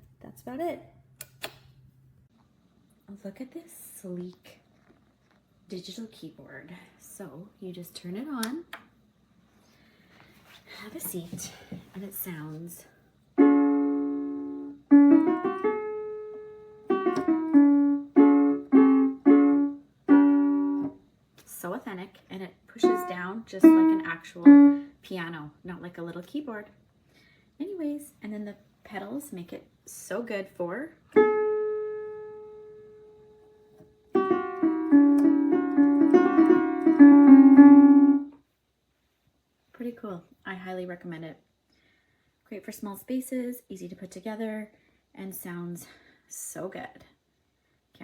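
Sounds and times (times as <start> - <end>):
digital piano notes and chords: 13.4 - 21.0, 34.1 - 38.3.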